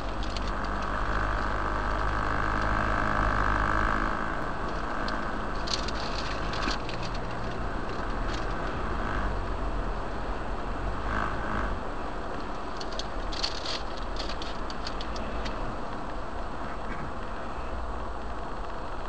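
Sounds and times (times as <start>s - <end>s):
road noise: 0.0s - 19.0s
vehicle engine hum: 0.0s - 19.0s
light clicks or rattles: 4.6s - 8.8s, 12.3s - 16.2s.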